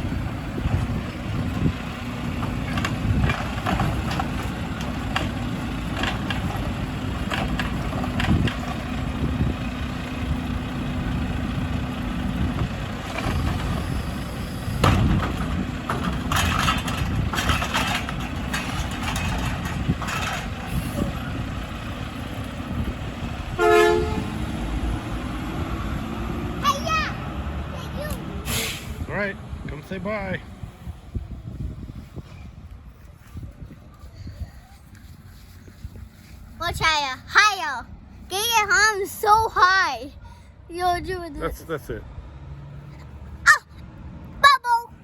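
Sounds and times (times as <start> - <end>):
garbage truck engine running: 0.0 - 29.8
knocks and clatters: 2.3 - 9.0, 14.8 - 20.7
short horn toot: 23.6 - 24.3.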